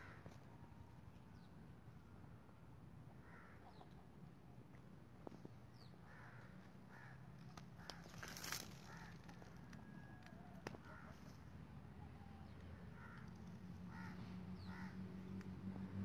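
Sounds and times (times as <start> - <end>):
faint bird calls: 12.2 - 15.0.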